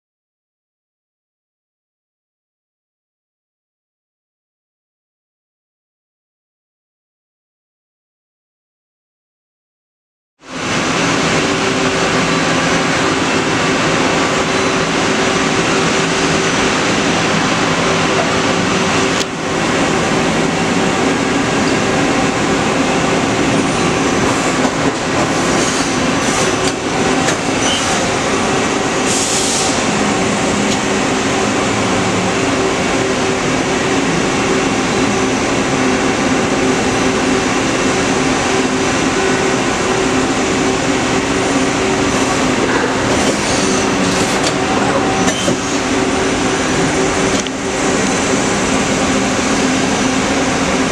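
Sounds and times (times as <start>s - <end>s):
lathe running: 10.6s - 50.9s.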